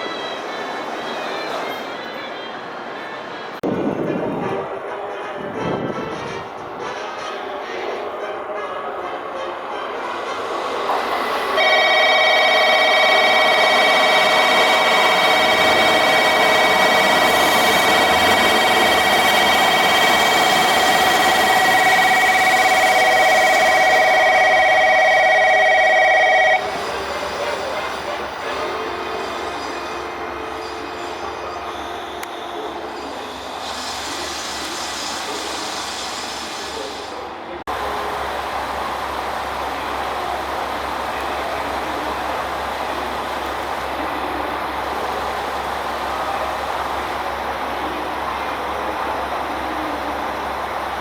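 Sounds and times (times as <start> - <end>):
diesel railcar running: 0.0 - 51.0
train and platform noise: 0.0 - 51.0
electric bell ringing with trill: 11.6 - 26.7.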